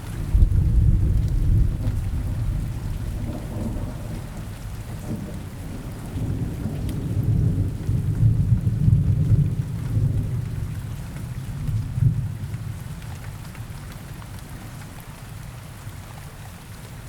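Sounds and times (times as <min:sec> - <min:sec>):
rain falling on forest: 0:00.0 - 0:17.0.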